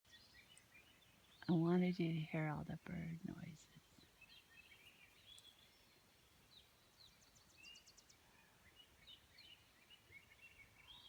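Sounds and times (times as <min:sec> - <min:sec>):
songbirds chirping and whistling: 0:00.1 - 0:11.0.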